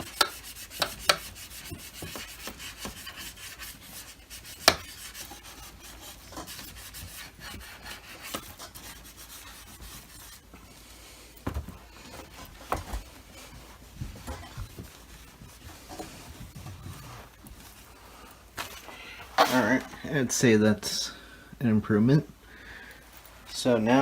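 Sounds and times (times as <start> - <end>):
sponge rubbing on plastic: 0.0 - 11.2, 11.8 - 18.0.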